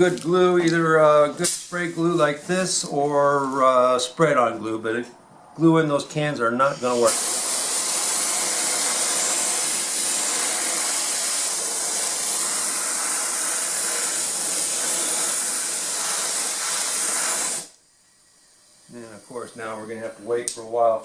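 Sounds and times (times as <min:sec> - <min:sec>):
spray can hissing: 0:06.8 - 0:17.8.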